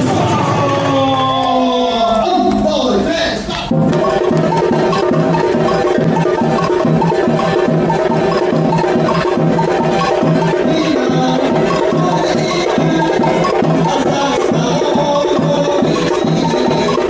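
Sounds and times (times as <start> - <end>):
low drum pulse: 3.7 - 17.0
samba percussion band playing: 3.7 - 17.0.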